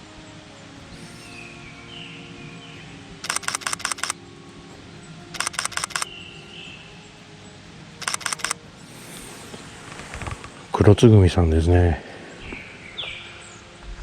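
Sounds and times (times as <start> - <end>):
thrush singing faintly: 0.0 - 14.0
camera shutter bursts: 3.2 - 4.2, 5.3 - 6.1, 8.0 - 8.6.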